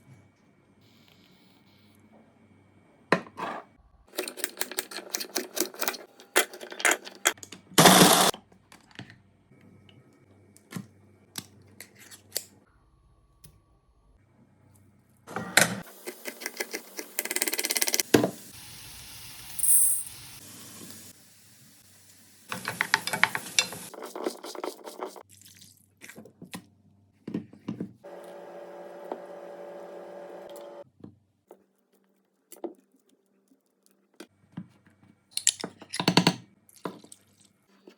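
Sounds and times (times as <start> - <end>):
kitchen clatters and handling: 3.2 - 9.1, 22.5 - 24.5.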